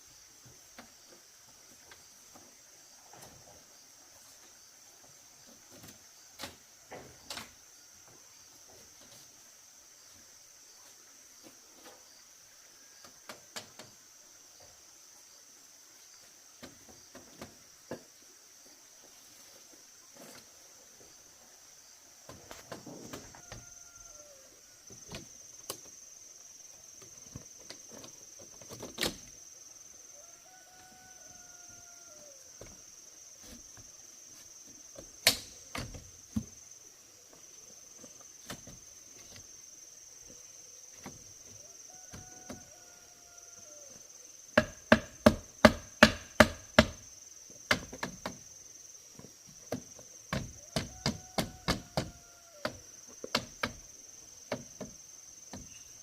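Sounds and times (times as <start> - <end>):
high insect drone: 0.0 - 56.0
chopping wood: 35.2 - 36.5, 44.6 - 47.0.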